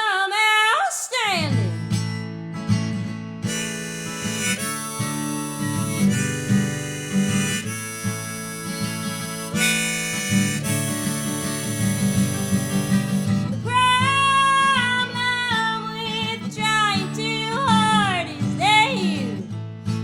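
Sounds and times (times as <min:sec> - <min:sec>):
strummed acoustic guitar: 0:01.4 - 0:20.0
harmonica playing: 0:03.5 - 0:15.9.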